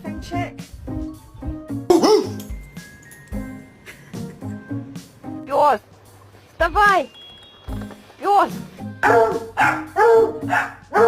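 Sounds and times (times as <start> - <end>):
background music: 0.0 - 11.0
dog barking: 1.9 - 2.4, 9.0 - 11.0.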